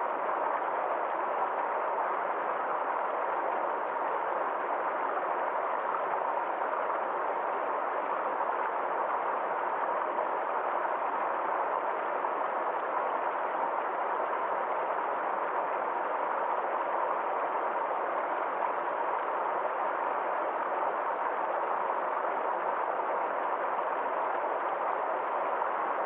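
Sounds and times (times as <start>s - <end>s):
forest stream flowing: 0.0s - 26.0s.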